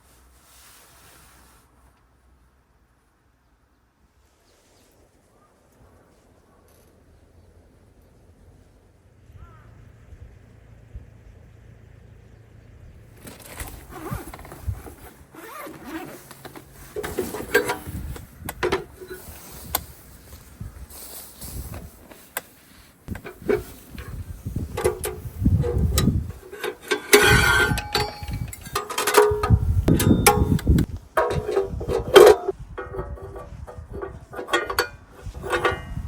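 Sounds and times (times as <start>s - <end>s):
objects being handled: 13.2s - 36.0s.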